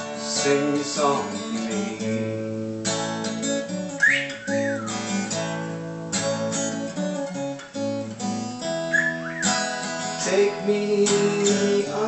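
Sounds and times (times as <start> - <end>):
acoustic guitar strumming: 0.0 - 12.0
rising and falling whistle: 4.0 - 5.2, 8.9 - 9.8.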